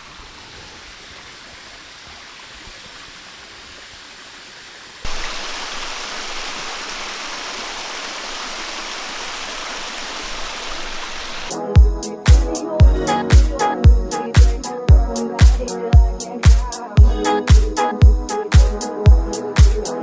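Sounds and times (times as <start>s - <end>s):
waterfall rushing: 0.0s - 11.5s.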